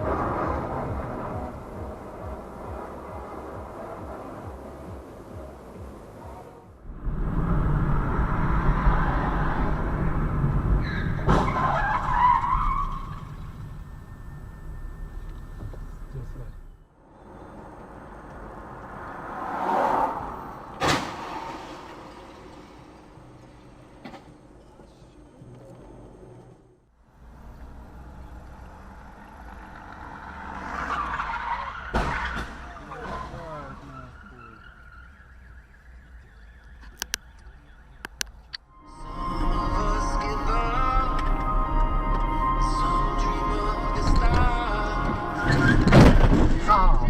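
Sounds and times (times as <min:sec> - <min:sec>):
car tyre and engine noise: 0:00.0 - 0:47.0
tyres skidding: 0:00.0 - 0:47.0
rushing noise: 0:06.2 - 0:11.7, 0:17.0 - 0:24.5
tyre screech: 0:10.8 - 0:15.6, 0:30.6 - 0:35.5, 0:44.0 - 0:46.7
sharp collision bang: 0:20.2 - 0:23.4.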